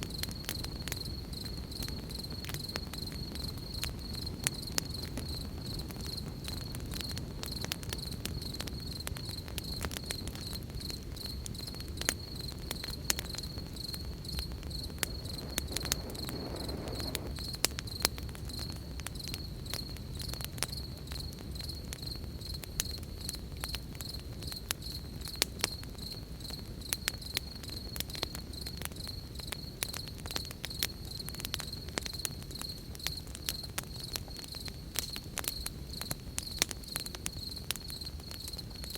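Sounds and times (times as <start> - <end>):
campfire crackling and popping: 0.0 - 38.9
crickets chirping: 0.0 - 38.9
low rumble: 14.4 - 17.3.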